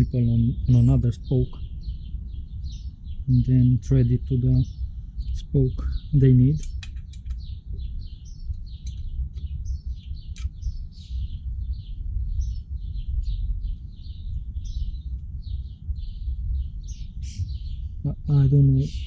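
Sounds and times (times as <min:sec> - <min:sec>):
low rumble: 0:00.0 - 0:19.0
small birds chirping: 0:00.0 - 0:19.0
light clicks of metal spokes: 0:06.6 - 0:07.5, 0:10.3 - 0:10.6.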